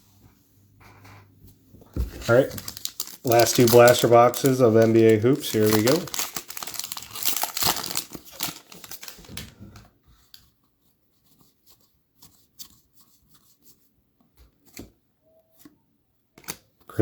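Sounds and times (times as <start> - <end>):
card pack wrappers tearing: 2.2 - 9.5
cards clicking and rustling: 2.2 - 9.5.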